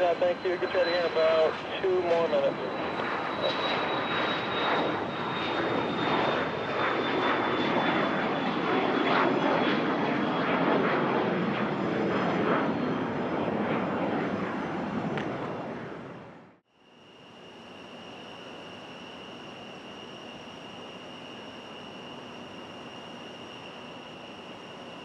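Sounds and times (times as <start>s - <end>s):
high whine falling in pitch: 0.0s - 7.6s, 16.8s - 25.0s
aircraft engines roaring: 0.0s - 25.0s.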